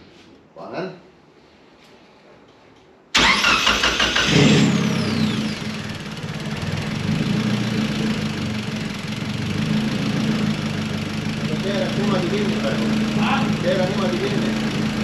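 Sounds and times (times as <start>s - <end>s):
engine starter cranking: 3.2s - 5.6s
car engine idling: 3.2s - 15.0s.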